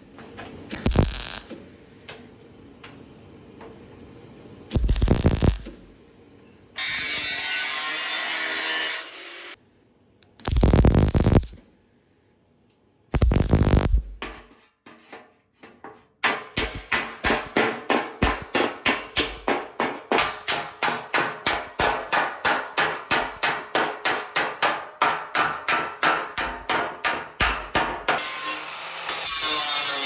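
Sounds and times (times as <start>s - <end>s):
hammer on sheet metal: 16.2s - 30.0s.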